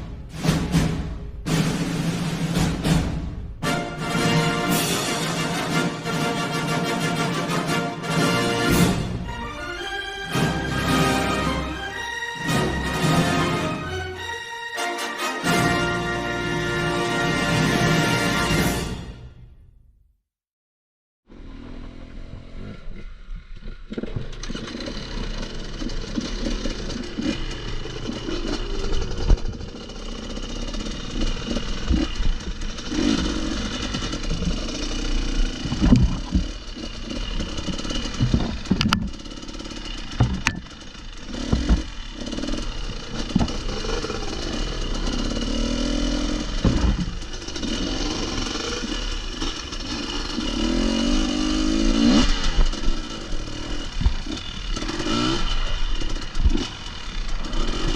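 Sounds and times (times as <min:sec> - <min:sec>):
motorcycle engine revving: 0:21.3 - 0:57.9
clatter over rocky ground: 0:23.0 - 0:57.9.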